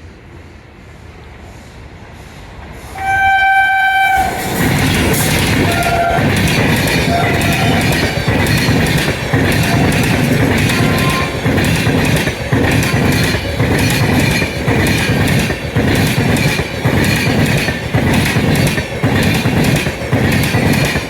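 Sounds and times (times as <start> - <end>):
train passing rush: 0.0 - 21.0
train horn: 3.0 - 4.6, 5.6 - 8.3, 9.5 - 11.7
wheels clattering over rail joints: 4.2 - 21.0.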